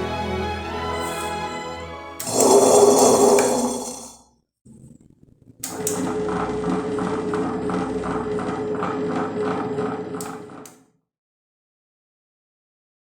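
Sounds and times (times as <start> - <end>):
wet grinder motor hum: 2.2 - 4.2, 5.7 - 10.7.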